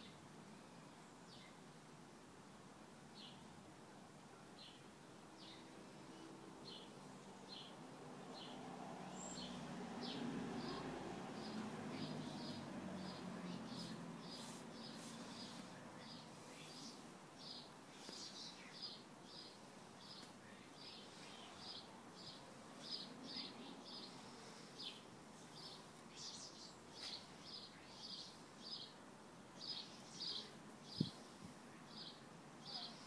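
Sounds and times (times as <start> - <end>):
small bird chirping: 8.4 - 29.0, 29.6 - 31.3.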